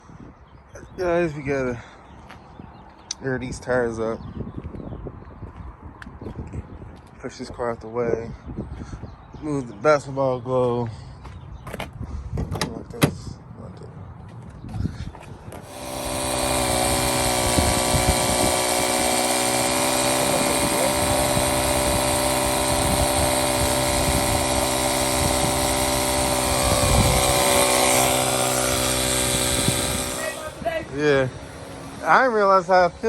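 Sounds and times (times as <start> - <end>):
air compressor motor hum: 15.6 - 33.0.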